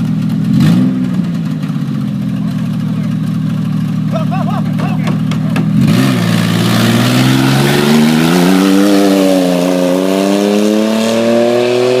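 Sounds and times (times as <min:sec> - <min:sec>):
truck engine revving high: 0:04.1 - 0:12.0.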